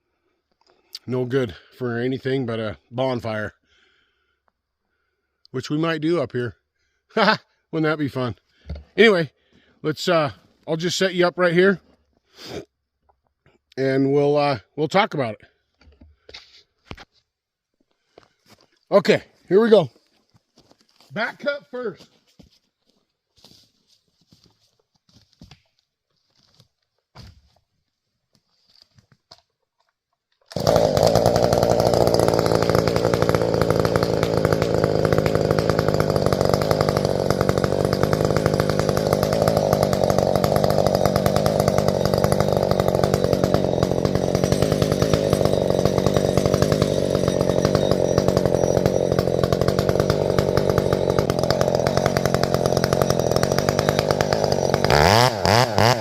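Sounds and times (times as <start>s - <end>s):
chainsaw running at full throttle: 30.5s - 56.0s.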